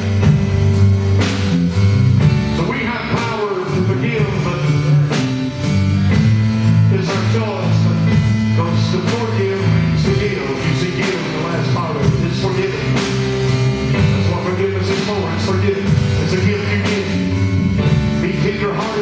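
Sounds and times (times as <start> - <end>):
heavy bass line: 0.0 - 19.0
piano: 0.0 - 19.0
steady drum beat: 0.0 - 19.0
person singing: 2.4 - 5.2, 6.8 - 13.3, 14.0 - 19.0.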